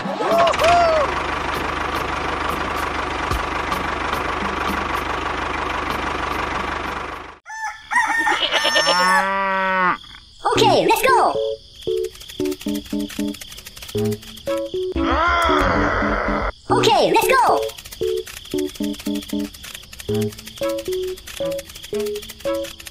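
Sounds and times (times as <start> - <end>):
farm animal calls: 8.0 - 11.3, 15.0 - 17.8
small motor humming: 11.9 - 15.0, 17.6 - 22.9.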